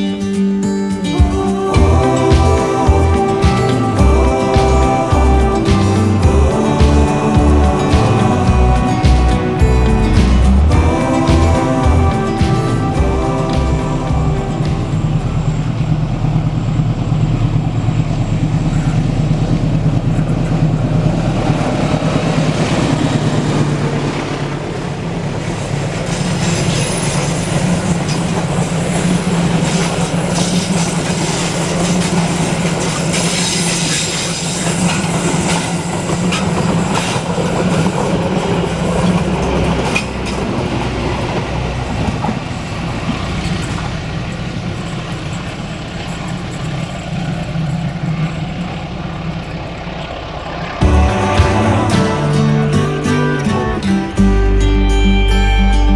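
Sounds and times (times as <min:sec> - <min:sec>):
diesel locomotive drone: 0:00.0 - 0:55.9
high wheel squeal: 0:14.4 - 0:40.5
wheels clattering over rail joints: 0:15.0 - 0:50.8.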